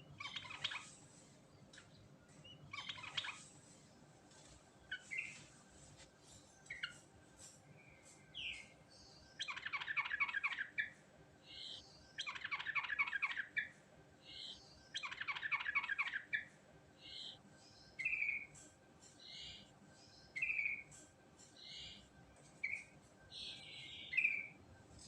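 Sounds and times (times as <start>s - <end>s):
bird singing rapid falling notes: 2.3s - 3.5s, 7.8s - 18.6s, 19.2s - 20.9s, 21.5s - 24.6s.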